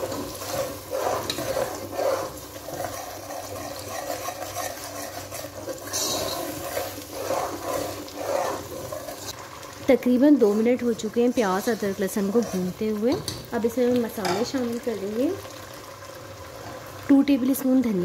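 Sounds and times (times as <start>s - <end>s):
spoon stirring against pan: 0.0s - 9.5s, 10.5s - 14.8s
paste sizzling in hot oil: 0.0s - 17.7s.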